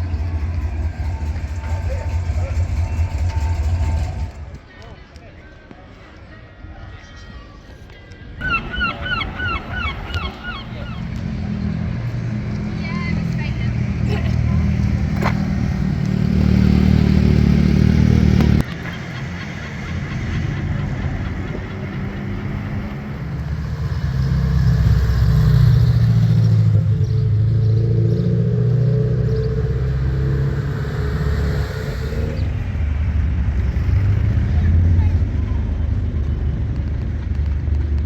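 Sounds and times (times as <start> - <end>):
vehicle engines running: 0.0 - 5.8, 8.2 - 38.0.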